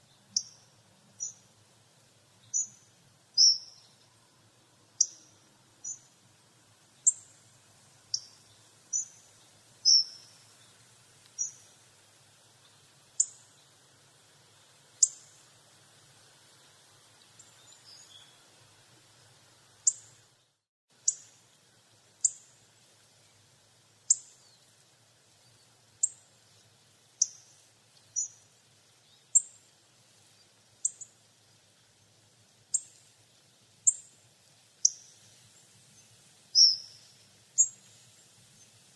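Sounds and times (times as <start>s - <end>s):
bird ticking calls: 5.0s - 6.1s, 8.1s - 10.4s, 36.6s - 37.8s.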